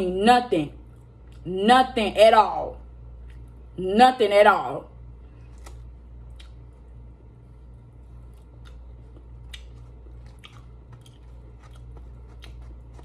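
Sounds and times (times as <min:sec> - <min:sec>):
low hum: 0:00.0 - 0:13.0
chewing with wet mouth clicks: 0:03.2 - 0:03.6, 0:05.5 - 0:06.8, 0:08.0 - 0:13.0.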